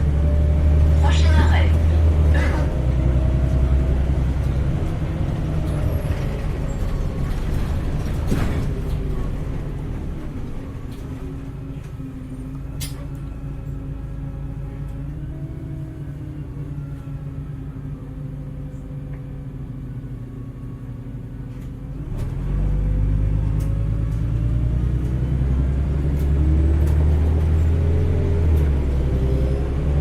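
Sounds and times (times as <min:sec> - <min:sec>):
bus engine accelerating: 0:00.0 - 0:30.0.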